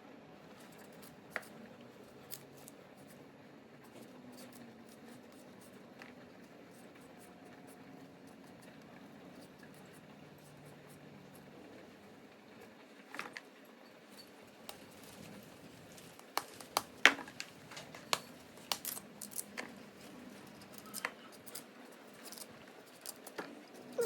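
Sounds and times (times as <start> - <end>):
small hard objects clicking: 16.2 - 19.8.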